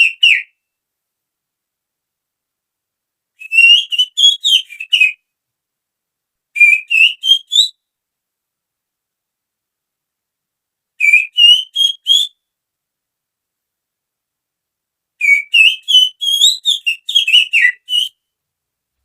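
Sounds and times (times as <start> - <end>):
finger-whistled bird call: 0.0 - 0.6, 3.4 - 5.2, 6.6 - 7.8, 11.0 - 12.4, 15.2 - 18.3.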